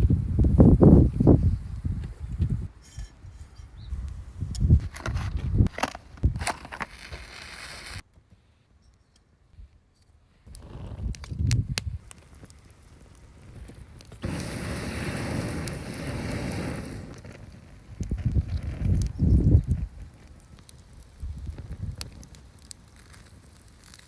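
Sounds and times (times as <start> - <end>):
campfire crackling: 4.0 - 8.0, 10.5 - 24.0.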